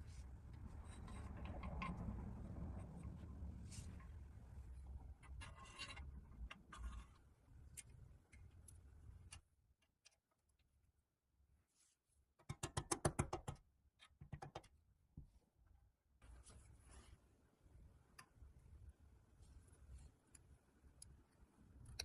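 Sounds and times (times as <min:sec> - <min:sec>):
low rumble: 0:00.0 - 0:05.1.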